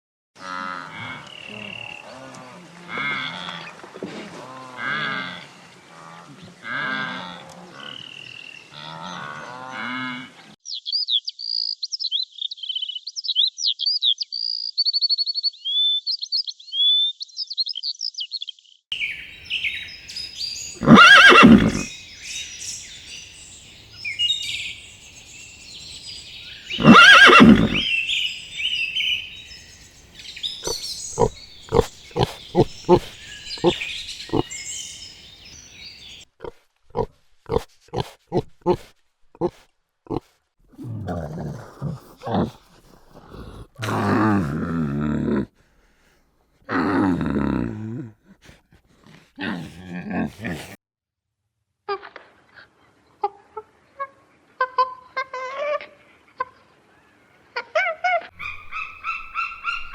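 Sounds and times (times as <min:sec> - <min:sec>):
farm animal calls: 0:00.4 - 0:03.7, 0:19.0 - 0:36.2, 0:57.8 - 0:59.9
high quick chirping: 0:19.0 - 0:36.2, 0:58.4 - 0:59.9.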